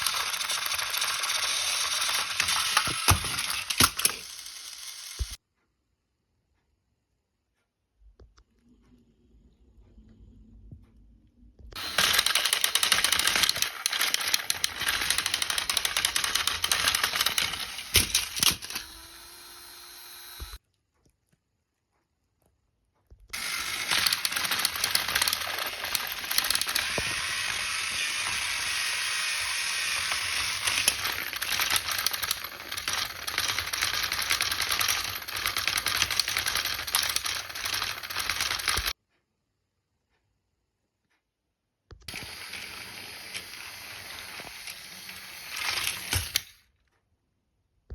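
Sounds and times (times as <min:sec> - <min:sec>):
mechanical clattering and rattling: 0:11.8 - 0:18.8, 0:23.4 - 0:38.9.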